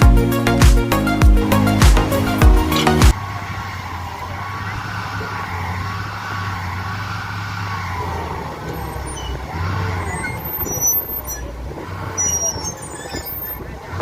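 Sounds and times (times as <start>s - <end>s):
high wavering squeals and creaks: 2.6s - 14.0s.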